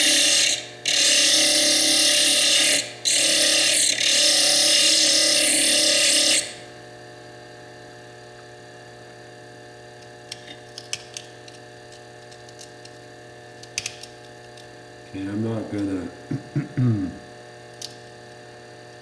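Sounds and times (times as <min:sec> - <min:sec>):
bench lathe grinding stone: 0:00.0 - 0:06.7
lathe humming: 0:00.0 - 0:06.7.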